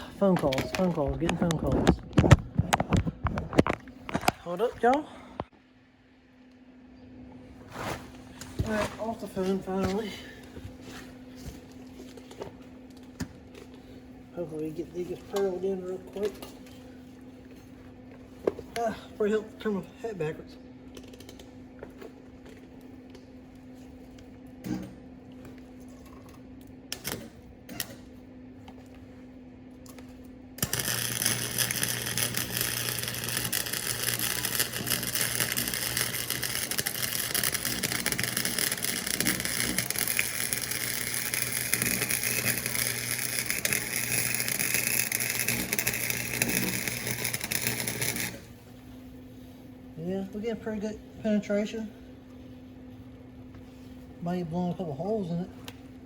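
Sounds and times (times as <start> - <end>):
low steady hum: 0.0 - 56.0
arc welder sizzling: 26.9 - 28.1, 30.6 - 48.7.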